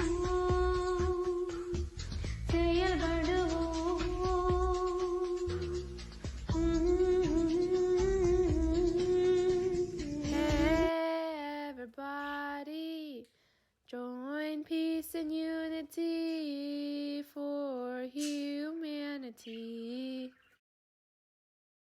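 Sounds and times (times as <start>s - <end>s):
instrumental backing music: 0.0s - 10.9s
woman singing: 0.0s - 13.3s, 13.9s - 20.5s.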